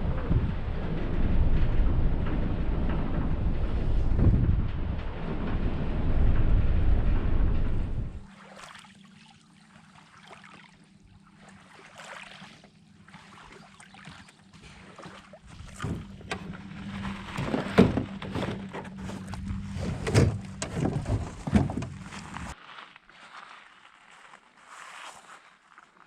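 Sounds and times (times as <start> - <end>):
wind noise: 0.0 - 8.3, 15.4 - 22.6
water noise: 0.0 - 22.6
paddle splashes: 8.2 - 22.6
canoe knocks: 14.6 - 22.6.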